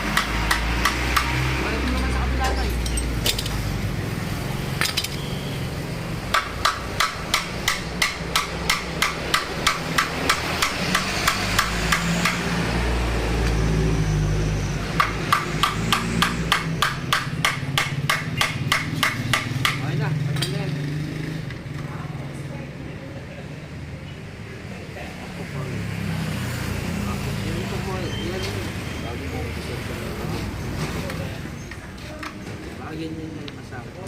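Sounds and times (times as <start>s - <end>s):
hammer tapping: 0.0s - 1.4s, 6.3s - 12.5s, 15.0s - 20.6s.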